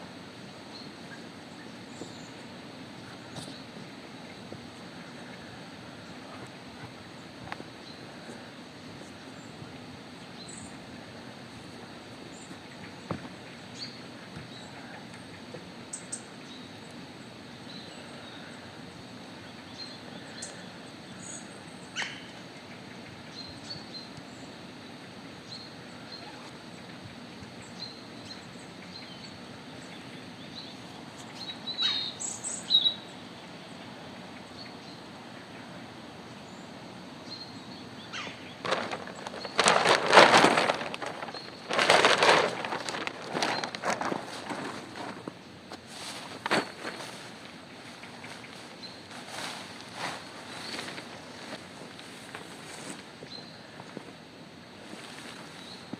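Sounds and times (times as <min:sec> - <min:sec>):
outdoor hiss: 0:00.0 - 0:55.9
small birds chirping faintly: 0:00.0 - 0:55.9
loud crunching: 0:38.6 - 0:45.4.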